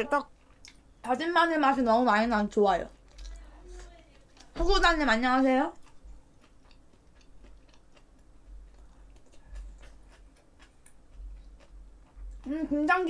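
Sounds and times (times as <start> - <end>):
person chewing: 0.0 - 1.0, 2.9 - 4.6, 5.7 - 12.5.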